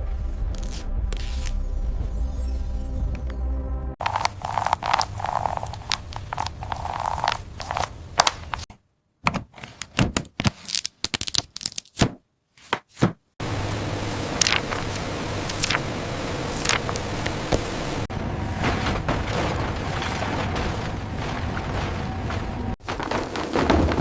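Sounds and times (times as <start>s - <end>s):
scraping and crackling: 4.0s - 8.7s, 18.4s - 24.0s.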